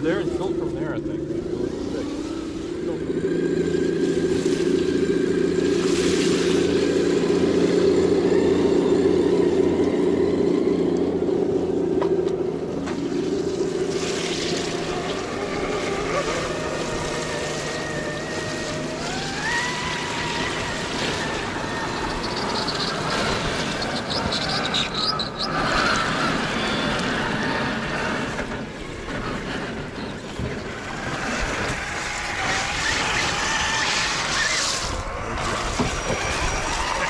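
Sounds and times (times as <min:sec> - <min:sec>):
electric motor and gears whining: 0:00.0 - 0:37.0.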